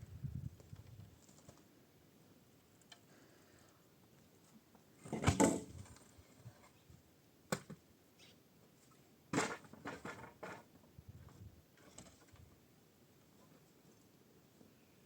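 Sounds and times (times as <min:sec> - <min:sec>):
wooden knocks and clatter: 0:09.4 - 0:10.7.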